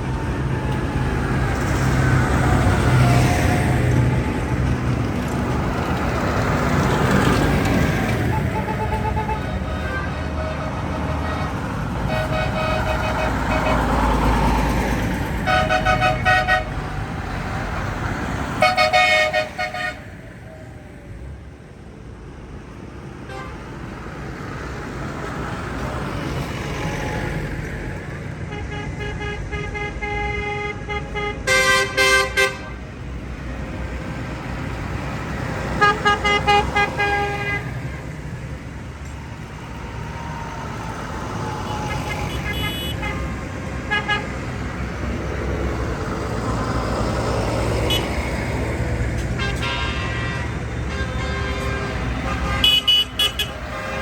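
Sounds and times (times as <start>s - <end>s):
tractors driving past: 0.0s - 54.0s
horns tooting: 6.2s - 14.4s, 15.4s - 17.2s, 18.4s - 20.1s, 28.5s - 32.8s, 35.7s - 38.0s, 41.3s - 44.6s, 47.8s - 48.4s, 49.2s - 54.0s.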